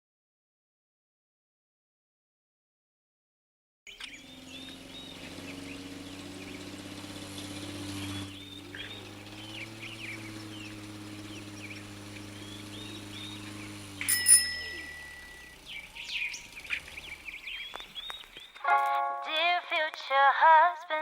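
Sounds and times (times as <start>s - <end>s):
birds chirping: 3.9s - 20.2s.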